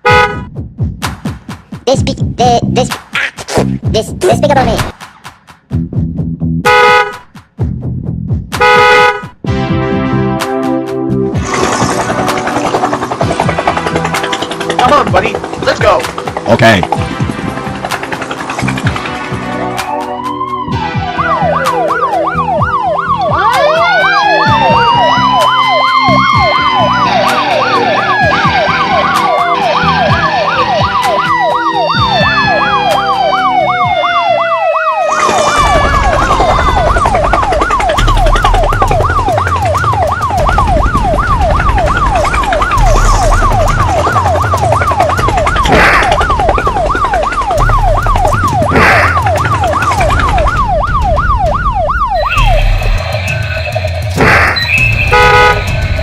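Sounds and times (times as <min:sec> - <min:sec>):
music: 0:00.0 - 0:56.0
siren yelp: 0:19.3 - 0:56.0
swooping tones: 0:34.5 - 0:56.0
low rumble: 0:35.4 - 0:56.0.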